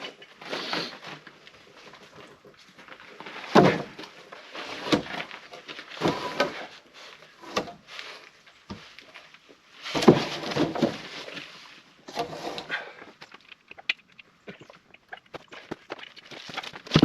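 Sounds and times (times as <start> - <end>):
firewood logs knocking together: 3.4 - 6.7, 9.9 - 11.5, 12.1 - 17.0.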